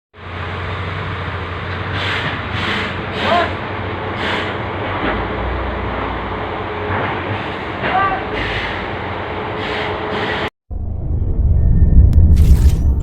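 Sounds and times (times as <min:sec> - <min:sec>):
engine rumble: 0:00.2 - 0:09.5.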